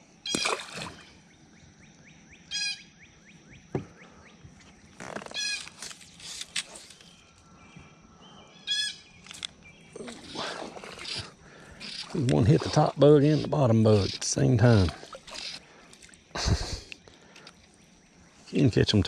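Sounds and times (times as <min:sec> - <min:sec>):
fish splashing into water: 0:00.3 - 0:01.1
bird calling: 0:05.0 - 0:19.0.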